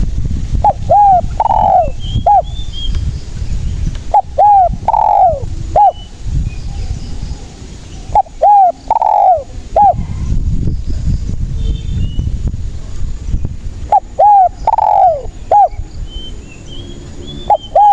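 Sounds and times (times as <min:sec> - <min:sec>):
steady low rumble: 0:00.0 - 0:17.9
dove cooing: 0:00.6 - 0:02.6, 0:04.0 - 0:06.2, 0:06.9 - 0:10.4, 0:13.9 - 0:15.8, 0:17.5 - 0:17.9
faint bird chirps: 0:13.4 - 0:17.9.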